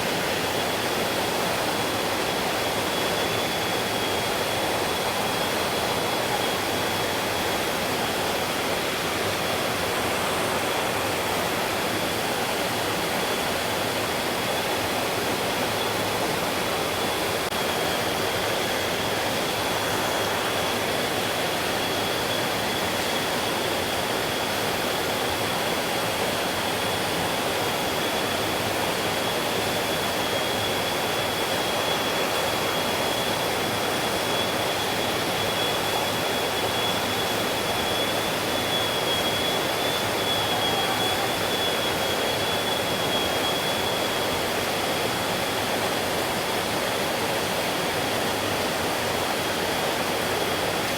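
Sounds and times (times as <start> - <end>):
thin high tone: 36.0 - 43.4.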